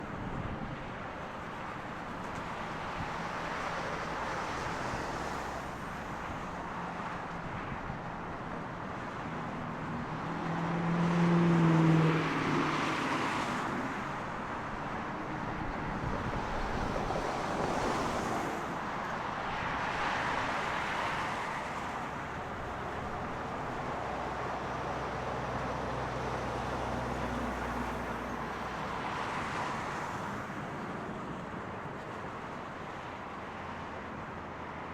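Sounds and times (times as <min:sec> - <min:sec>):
road traffic rumble: 0:00.0 - 0:34.9
vehicle passing with low hum: 0:10.1 - 0:13.6.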